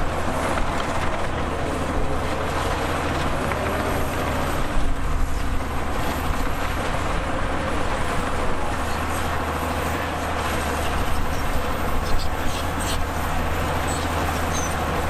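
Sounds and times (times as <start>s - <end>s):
heavy diesel machinery running: 0.0s - 15.0s.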